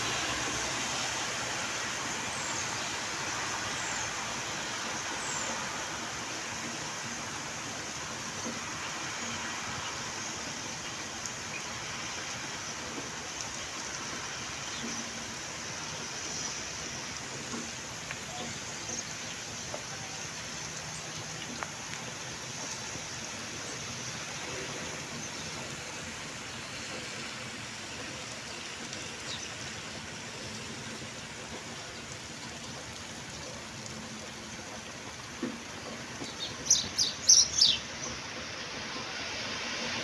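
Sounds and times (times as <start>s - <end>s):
rain falling: 0.0s - 40.0s
bird chirping: 36.2s - 38.2s.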